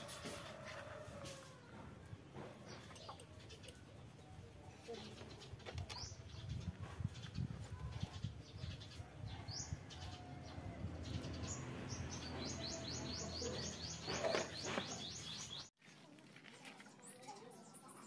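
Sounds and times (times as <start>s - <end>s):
bird chirping: 10.9s - 15.7s.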